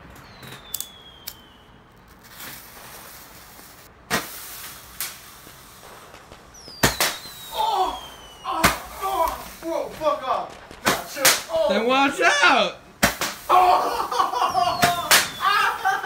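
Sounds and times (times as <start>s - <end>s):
small fireworks bangs: 0.0s - 16.0s
thin whistle falling in pitch: 6.6s - 8.5s.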